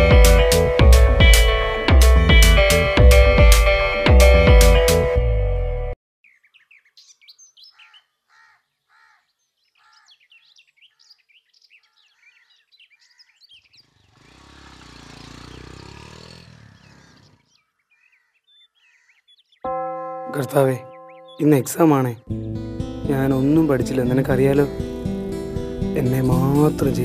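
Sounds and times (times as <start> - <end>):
birds chirping: 6.2 - 27.0.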